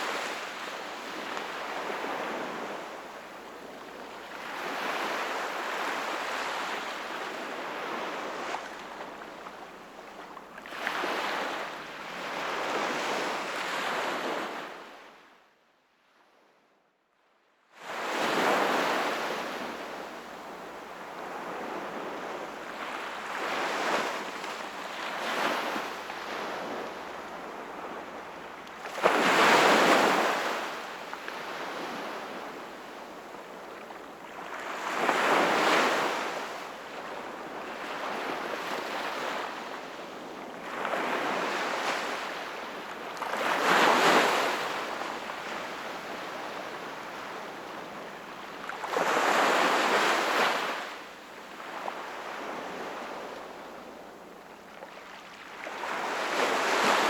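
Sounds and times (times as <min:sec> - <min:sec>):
sea waves breaking on shore: 0:17.9 - 0:57.0.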